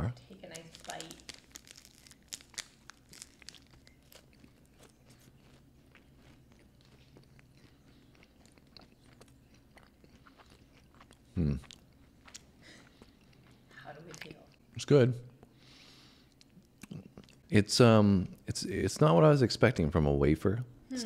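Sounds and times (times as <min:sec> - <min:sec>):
crunching wafer bar: 0:00.6 - 0:07.5
chewing: 0:00.6 - 0:14.7.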